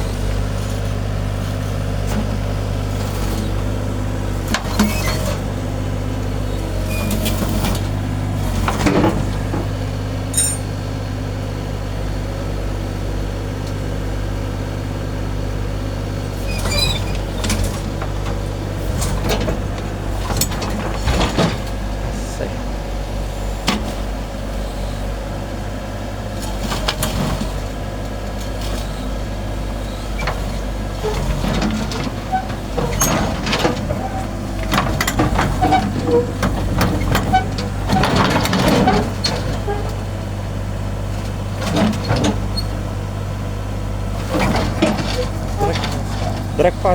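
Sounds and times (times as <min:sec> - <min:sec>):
diesel engine running: 0:00.0 - 0:46.9
metal knocks and clanks: 0:08.6 - 0:10.8, 0:17.4 - 0:22.2.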